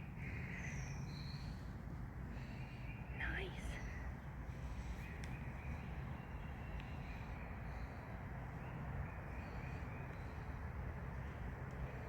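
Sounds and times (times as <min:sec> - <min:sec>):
faint distant bird calls: 0:00.0 - 0:12.0.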